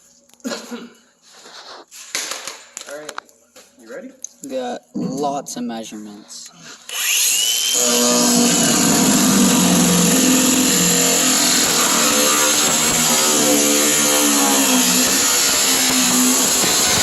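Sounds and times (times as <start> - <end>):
angle grinder cutting metal: 6.9 - 17.0.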